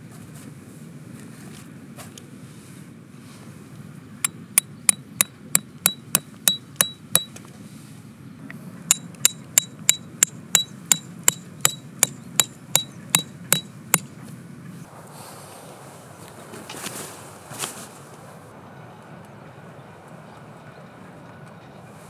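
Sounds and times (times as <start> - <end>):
hammer driving metal tent stakes: 4.2 - 7.4, 8.9 - 14.1.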